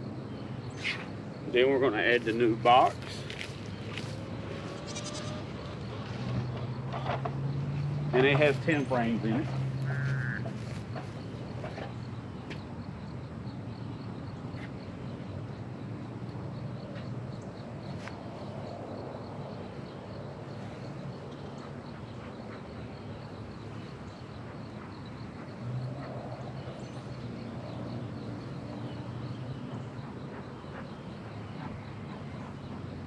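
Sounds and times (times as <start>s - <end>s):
honeybees buzzing: 7.6s - 11.7s.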